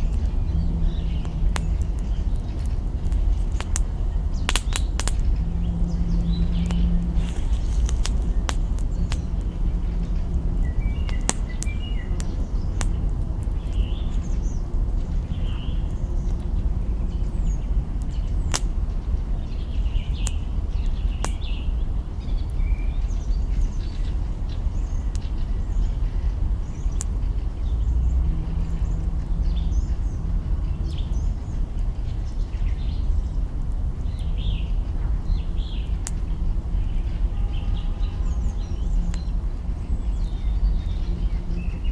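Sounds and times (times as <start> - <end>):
low rumble: 0.0 - 19.5
campfire crackling and popping: 0.0 - 41.9
small birds chirping: 0.0 - 41.9.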